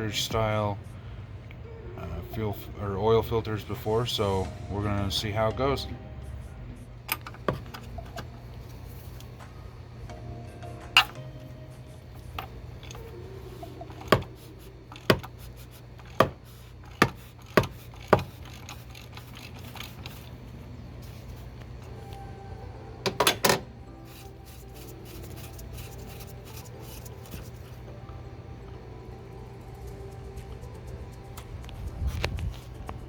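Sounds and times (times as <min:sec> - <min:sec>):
hand tools clicking on metal: 0:13.8 - 0:20.4.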